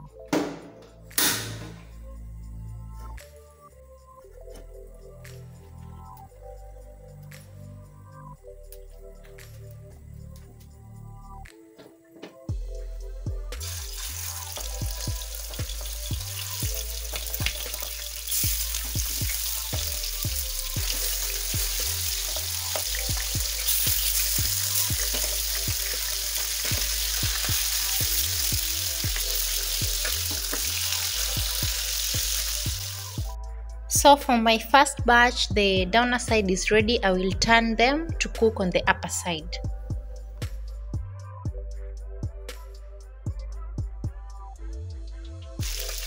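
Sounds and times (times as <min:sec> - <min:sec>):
chicken sizzling in hot oil: 0:13.6 - 0:33.4, 0:45.6 - 0:46.0.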